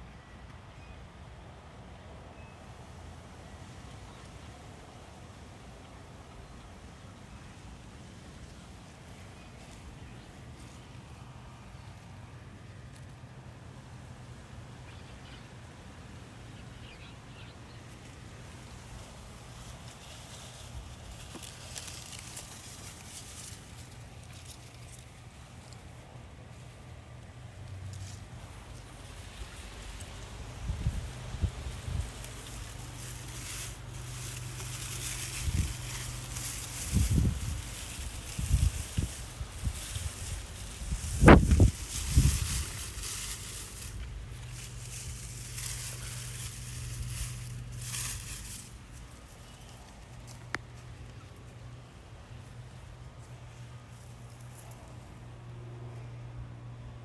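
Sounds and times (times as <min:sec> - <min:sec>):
steady low hum: 0:03.0 - 0:57.0
steady low rumble: 0:20.7 - 0:57.0.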